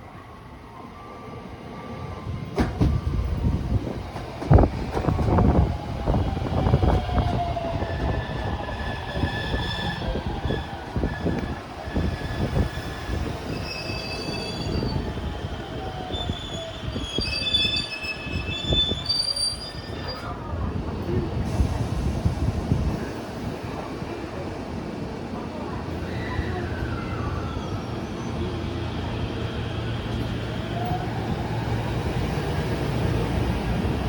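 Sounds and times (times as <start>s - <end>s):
high-pitched wheel squeal: 16.1s - 20.3s.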